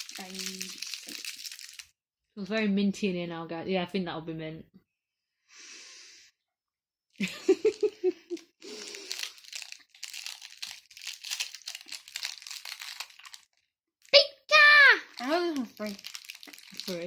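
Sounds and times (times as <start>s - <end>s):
sweet wrapper crinkling and tearing: 0.0s - 2.0s, 7.7s - 14.2s, 15.0s - 17.0s
person giggling: 7.2s - 8.5s.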